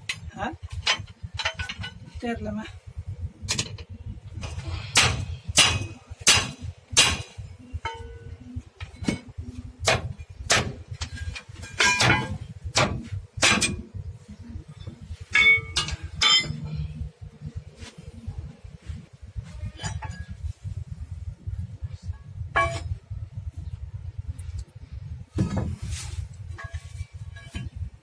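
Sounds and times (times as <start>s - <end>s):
hammer striking steel spring: 4.9s - 8.3s, 11.8s - 13.9s, 15.3s - 17.0s.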